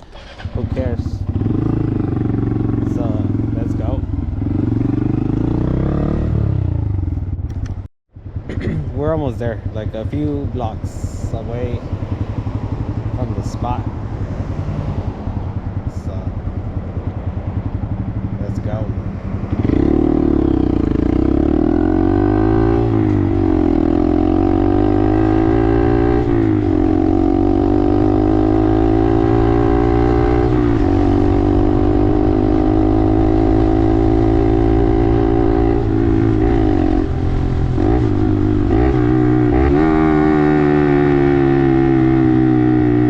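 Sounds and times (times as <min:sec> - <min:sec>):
motorcycle engine shifting gears: 0:11.8 - 0:43.0.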